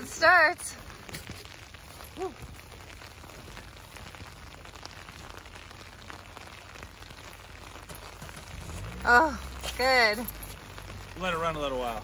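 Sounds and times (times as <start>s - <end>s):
light rain hiss: 0.0s - 12.0s
raindrop ticks: 0.0s - 12.0s.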